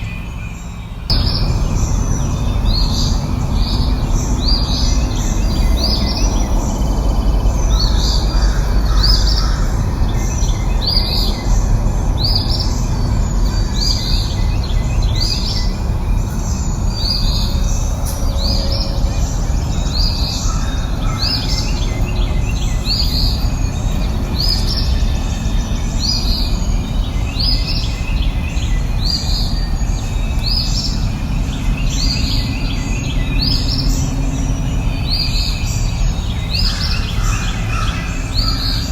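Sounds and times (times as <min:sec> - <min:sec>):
songbird high call: 0:00.0 - 0:38.9
low rushing noise: 0:01.1 - 0:28.1.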